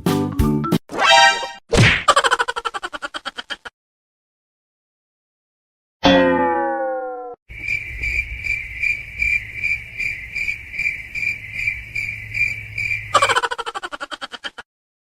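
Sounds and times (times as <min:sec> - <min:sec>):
tone sliding down in pitch: 0:06.0 - 0:07.4
cricket chirping: 0:07.5 - 0:14.0.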